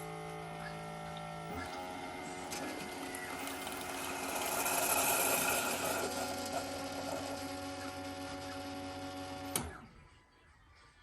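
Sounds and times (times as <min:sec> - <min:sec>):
coffee maker pump running: 0:00.0 - 0:09.6
hot water hissing and sputtering: 0:03.0 - 0:07.4.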